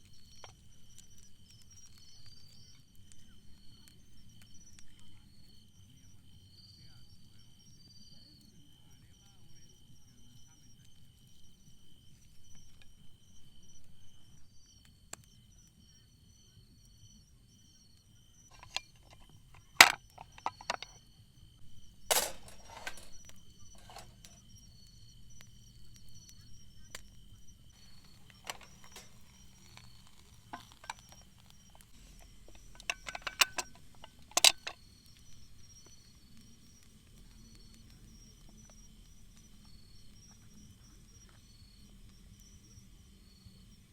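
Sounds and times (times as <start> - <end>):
crickets chirping: 0.0 - 43.9
sharp clicks and knocks: 18.5 - 21.0, 22.1 - 24.4, 27.8 - 34.8
sharp click: 22.1 - 24.4.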